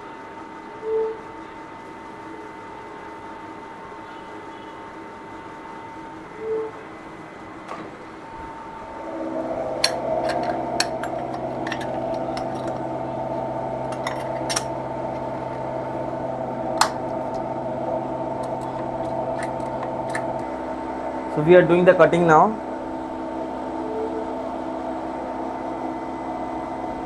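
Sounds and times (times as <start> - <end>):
machine tool cutting metal hum: 1.8 - 27.0
sharp metallic clicks: 18.3 - 20.5.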